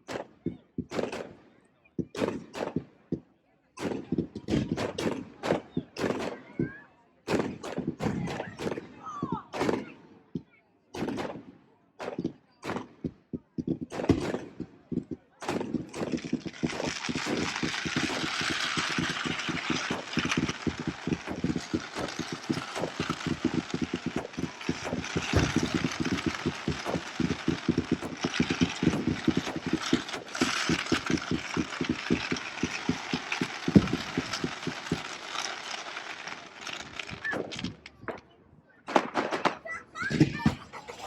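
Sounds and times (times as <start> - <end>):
fireworks bangs: 3.8 - 10.0, 11.0 - 41.0
fireworks crackling: 13.6 - 38.3, 38.9 - 41.0.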